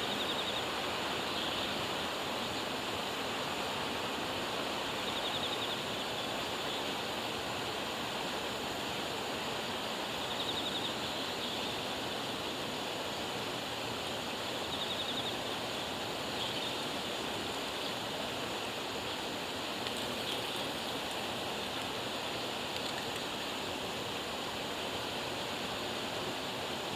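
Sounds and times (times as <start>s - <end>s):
running water rushing: 15.5s - 25.4s.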